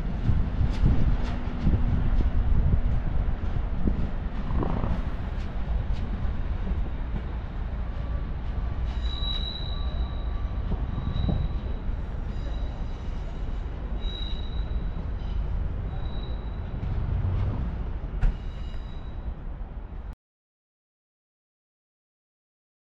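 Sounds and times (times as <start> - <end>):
train rumbling: 0.0 - 20.2
high-pitched wheel squeals: 8.0 - 16.8, 18.2 - 19.4.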